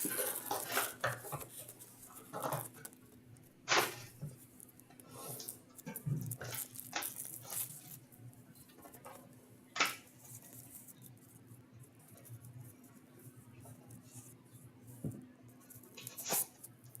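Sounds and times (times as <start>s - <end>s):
packaging crinkling: 0.0s - 3.0s, 5.3s - 8.0s.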